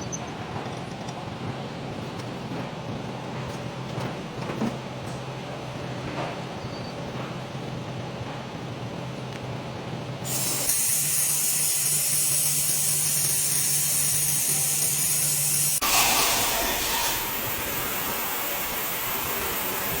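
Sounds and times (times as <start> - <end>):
steady loud hiss: 10.2 - 20.0.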